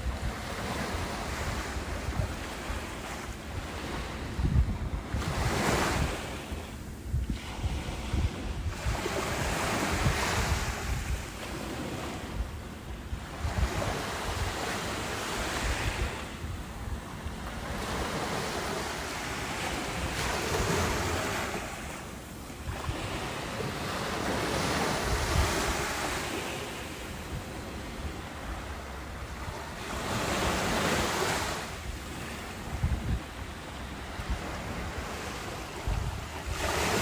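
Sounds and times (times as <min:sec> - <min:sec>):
ocean waves breaking: 0:00.0 - 0:37.0.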